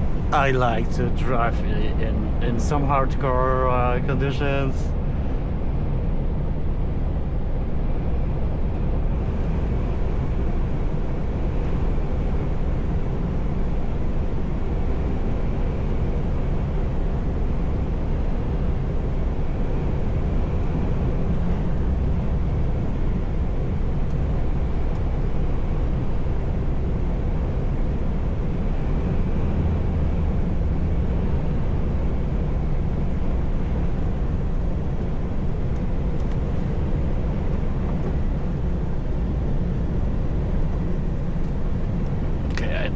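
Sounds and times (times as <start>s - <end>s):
truck diesel engine rumbling: 0.0s - 4.8s
road noise: 0.0s - 42.9s.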